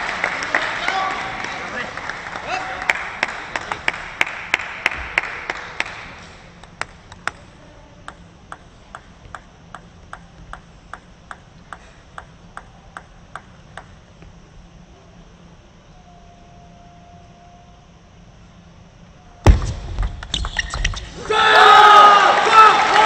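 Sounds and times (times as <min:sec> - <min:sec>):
applause: 0:00.0 - 0:06.2, 0:22.2 - 0:23.0
table tennis ball pinging: 0:08.0 - 0:14.0.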